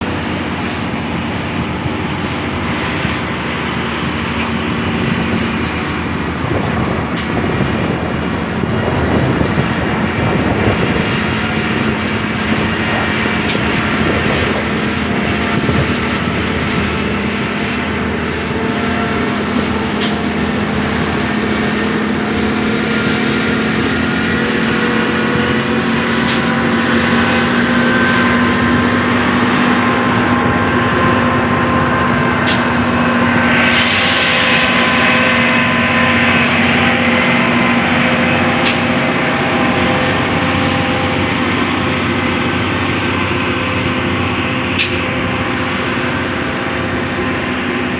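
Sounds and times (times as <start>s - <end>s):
road noise: 0.0s - 47.9s
truck diesel engine droning: 0.0s - 47.9s.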